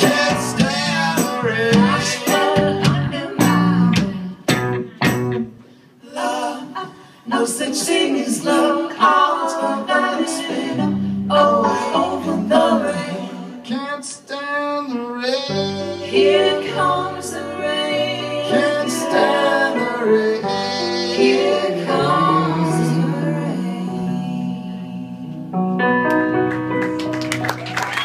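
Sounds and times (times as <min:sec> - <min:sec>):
sustained bass notes: 0:00.0 - 0:05.6
guitar: 0:00.0 - 0:05.8.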